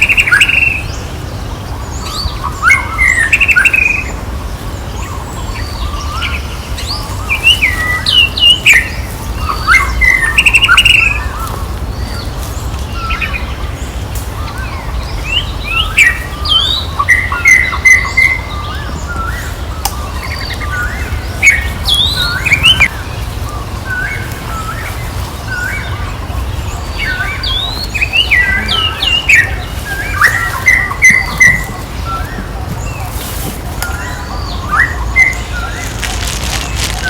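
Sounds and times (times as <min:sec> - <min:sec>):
high-pitched chirping calls: 0:25.6 - 0:37.0.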